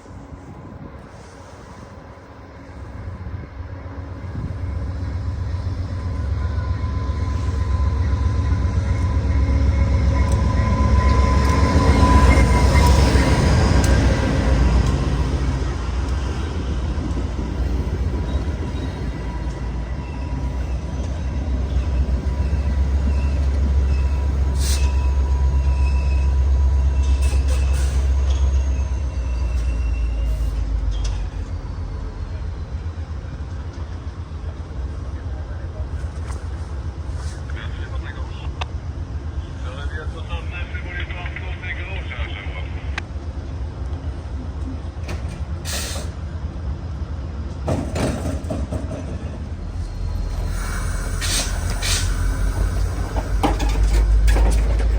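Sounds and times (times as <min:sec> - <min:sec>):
diesel locomotive idling: 0:01.1 - 0:54.9
air hiss: 0:50.1 - 0:53.5.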